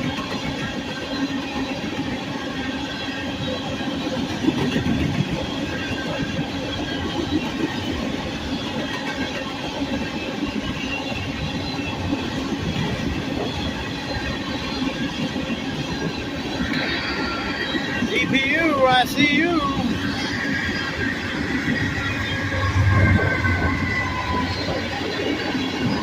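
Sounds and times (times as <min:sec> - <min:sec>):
train wheels clicking over rail joints: 0:00.0 - 0:18.1.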